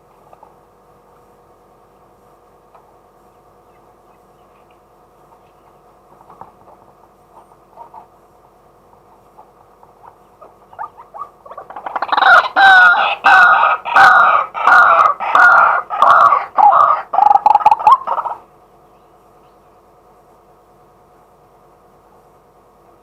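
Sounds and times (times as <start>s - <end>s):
waterhen calling repeated notes: 10.0s - 18.4s.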